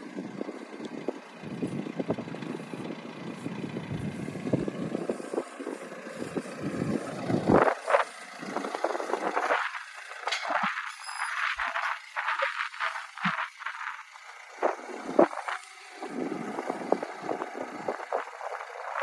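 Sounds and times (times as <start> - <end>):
vehicle engine rumbling: 0.0 - 19.0
clattering and rattling: 8.6 - 13.5.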